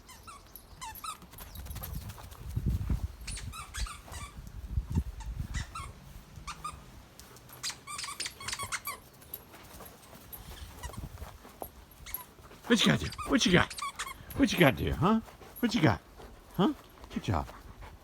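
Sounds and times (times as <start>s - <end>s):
dog toy squeaking: 3.3s - 4.4s, 5.2s - 6.8s, 7.6s - 9.4s, 12.0s - 12.2s, 12.9s - 14.4s.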